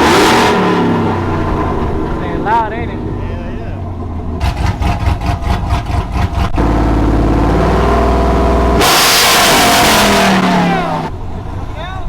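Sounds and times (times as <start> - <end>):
truck engine running choppy: 3.8 - 11.7.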